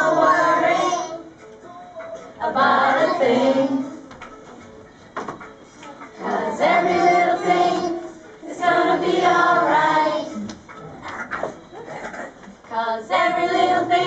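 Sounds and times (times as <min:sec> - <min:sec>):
group of voices singing: 0:00.0 - 0:01.3, 0:02.2 - 0:04.1, 0:06.2 - 0:10.6, 0:12.7 - 0:14.0.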